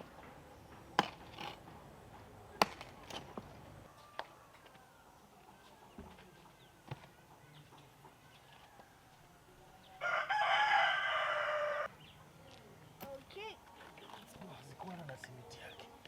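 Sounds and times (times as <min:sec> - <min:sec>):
rooster crowing: 0:08.5 - 0:11.9.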